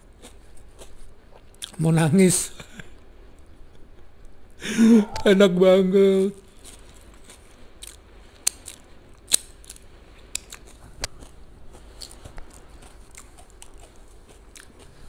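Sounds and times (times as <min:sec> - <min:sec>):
crisps crunching while chewed: 0:00.0 - 0:01.8, 0:06.4 - 0:15.0.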